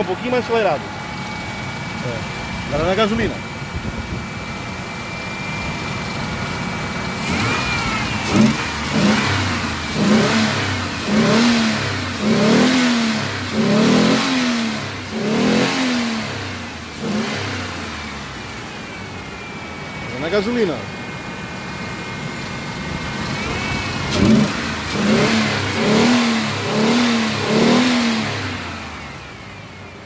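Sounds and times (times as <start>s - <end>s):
car engine idling and revving: 0.0s - 30.0s.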